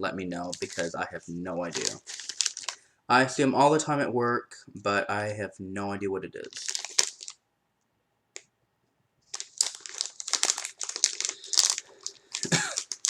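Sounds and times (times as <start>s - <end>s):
snack bag crinkling: 0.4s - 1.0s, 1.6s - 2.8s, 6.4s - 7.4s, 9.3s - 13.0s.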